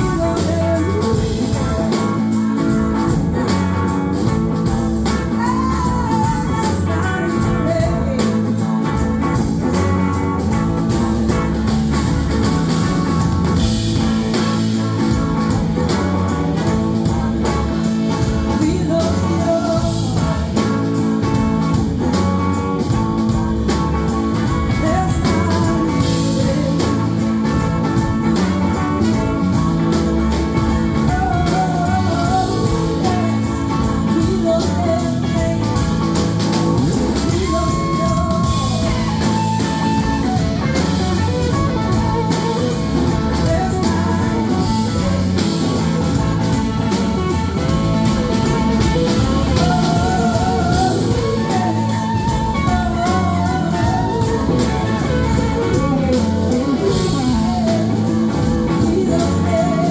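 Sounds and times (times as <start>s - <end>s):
bass guitar: 0.0s - 59.9s
drums: 0.0s - 59.9s
electric guitar lead: 0.0s - 59.9s.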